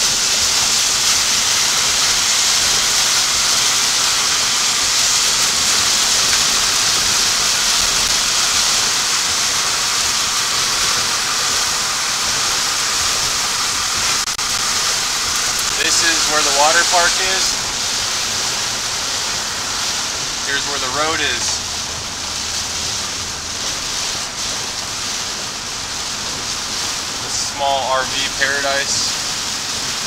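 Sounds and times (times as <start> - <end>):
water hissing: 0.0 - 30.0.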